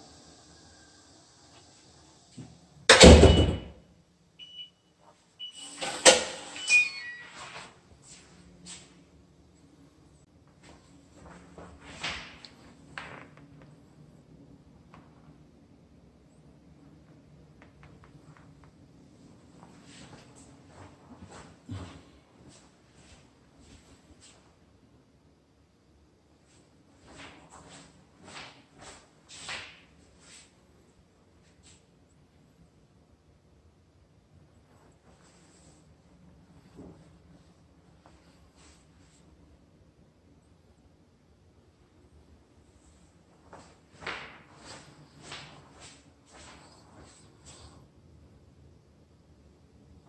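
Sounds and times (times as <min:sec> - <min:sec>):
door thumping shut: 0:02.9 - 0:03.7
short electronic beeps: 0:06.5 - 0:07.4.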